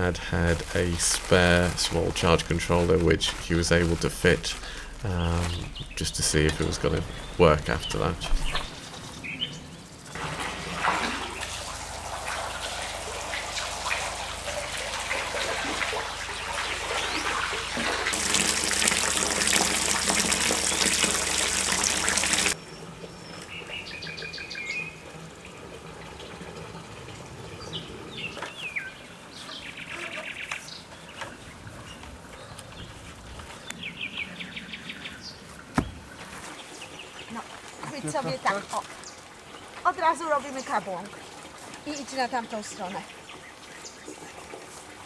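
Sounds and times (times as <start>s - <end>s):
water pump humming: 0.0s - 8.8s, 10.1s - 22.6s
water rushing from outlet: 0.0s - 9.0s, 10.0s - 22.6s
birds chirping: 0.0s - 24.9s, 27.5s - 41.2s.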